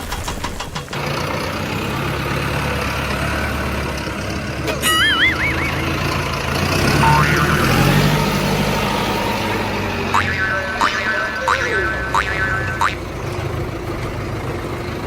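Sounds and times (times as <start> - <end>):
small engine droning: 0.8 - 15.0
warbling cartoon whistle: 4.8 - 5.9, 7.0 - 8.0, 10.2 - 13.0.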